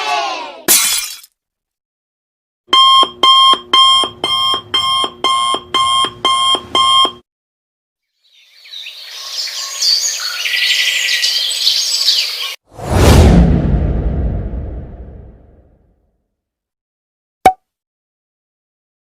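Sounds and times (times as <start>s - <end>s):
alarm clock beeping: 2.7s - 7.2s
birds chirping: 8.2s - 12.6s.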